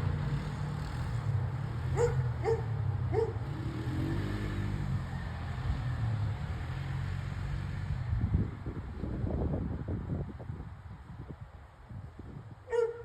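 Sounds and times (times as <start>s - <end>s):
atv engine running: 0.0s - 9.1s.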